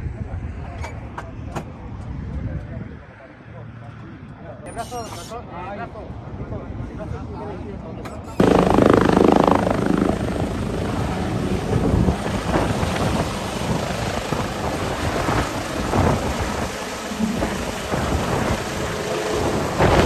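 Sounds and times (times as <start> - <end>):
helicopter rumble and whoosh: 8.4 - 20.0
rotor wash buffeting microphone: 8.4 - 20.0.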